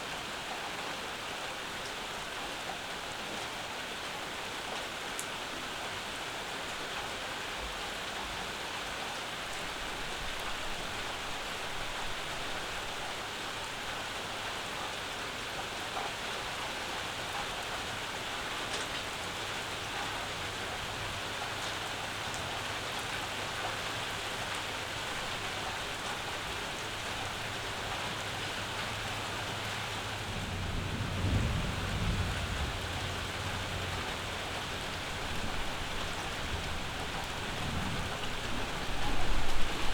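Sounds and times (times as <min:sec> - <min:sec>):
steady rain on porch: 0:00.0 - 0:39.9
distant thunder rumble: 0:28.9 - 0:39.9.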